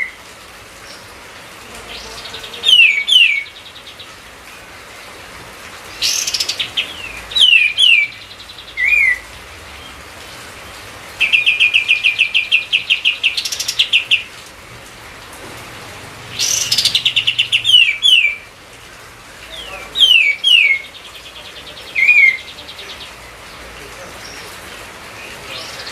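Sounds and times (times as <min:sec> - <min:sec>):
songbird singing chirps and whistles: 0:01.9 - 0:04.1, 0:06.0 - 0:09.2, 0:16.3 - 0:18.5, 0:19.5 - 0:23.2.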